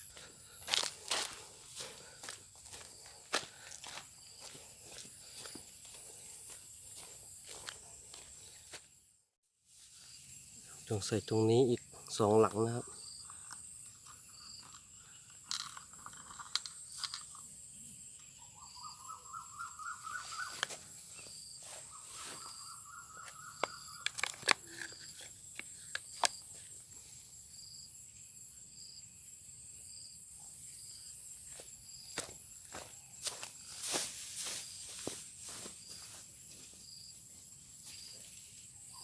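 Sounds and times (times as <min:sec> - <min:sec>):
insects droning: 0:00.0 - 0:09.1, 0:09.7 - 0:39.0
short insect chirp: 0:09.7 - 0:39.0
rising trilling call: 0:18.4 - 0:20.8.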